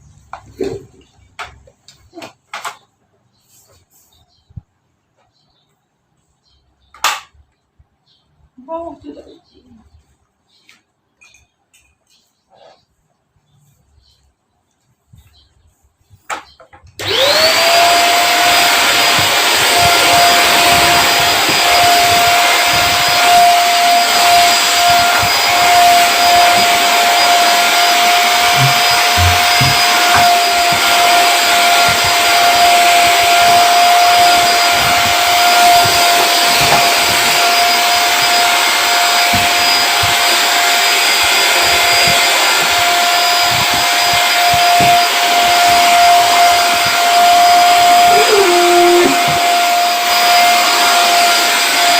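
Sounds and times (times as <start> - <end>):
vacuum cleaner running: 17.0 - 51.9.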